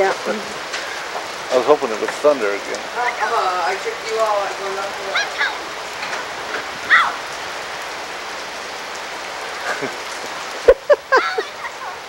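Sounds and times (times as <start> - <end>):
heavy rain on wet street: 0.0 - 12.0
person shouting: 4.9 - 5.7, 6.9 - 7.2.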